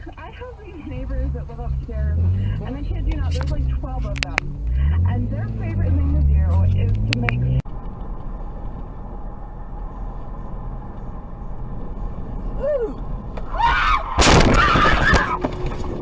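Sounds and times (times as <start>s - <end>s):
car road and engine rumble: 0.0s - 16.0s
vehicle crash: 13.3s - 16.0s.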